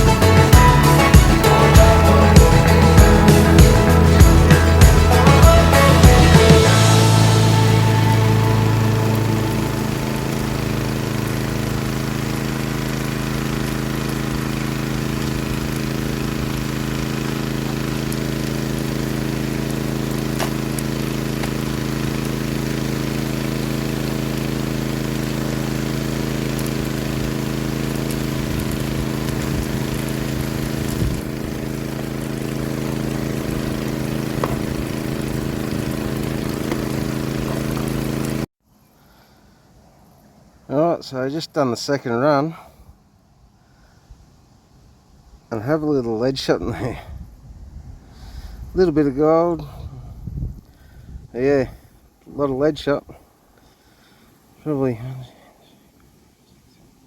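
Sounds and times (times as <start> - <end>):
small petrol engine running: 0.0 - 38.5
water rushing through sluice: 0.0 - 38.5.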